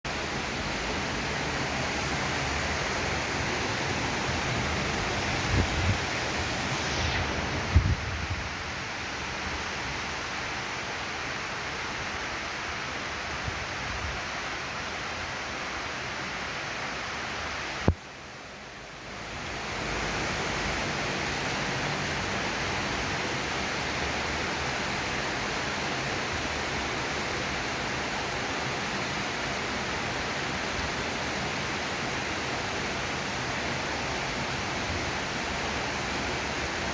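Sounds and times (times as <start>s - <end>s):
heavy rain falling: 0.1s - 18.0s.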